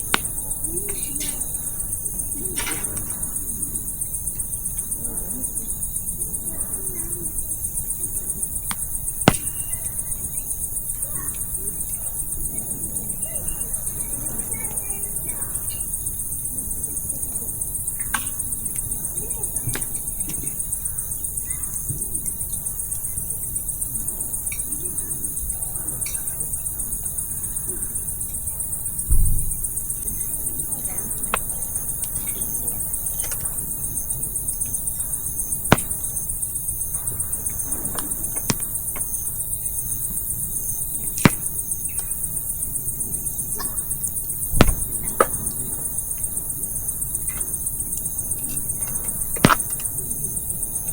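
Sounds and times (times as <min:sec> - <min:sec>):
crickets chirping: 0:00.0 - 0:50.9
campfire crackling and popping: 0:08.6 - 0:10.0, 0:35.7 - 0:36.3
dull thumps: 0:08.7 - 0:09.7, 0:35.7 - 0:36.1, 0:37.7 - 0:39.1, 0:41.2 - 0:41.6, 0:44.5 - 0:45.5, 0:49.4 - 0:49.8.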